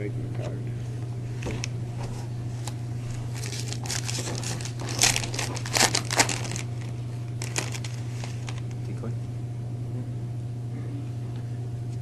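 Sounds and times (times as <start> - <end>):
foil wrapper crinkling and tearing: 2.6 - 8.8.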